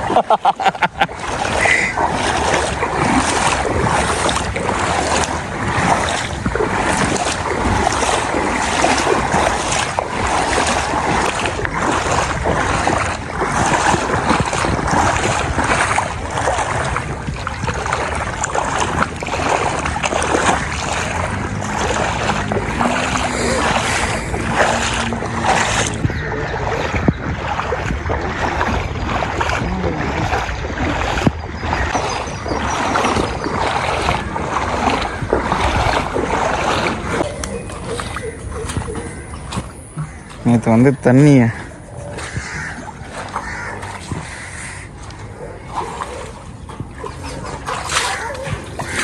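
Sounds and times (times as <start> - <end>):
floodwater rushing: 0.0 - 49.0
wind buffeting microphone: 0.0 - 49.0.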